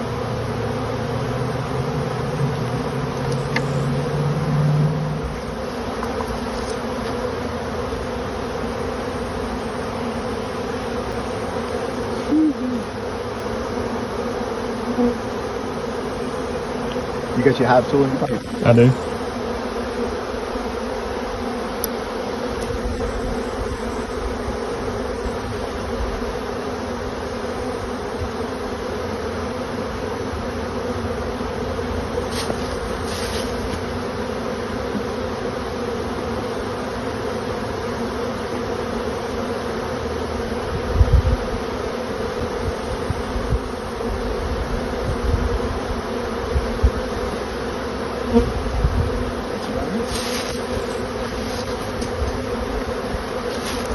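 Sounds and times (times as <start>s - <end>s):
bee swarm buzzing: 0.0s - 53.9s.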